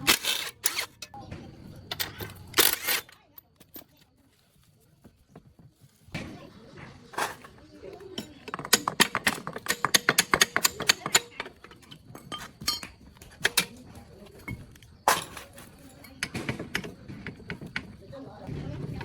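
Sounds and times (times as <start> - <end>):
metal tools clinking: 0.0 - 1.2, 1.8 - 4.2, 7.2 - 18.3.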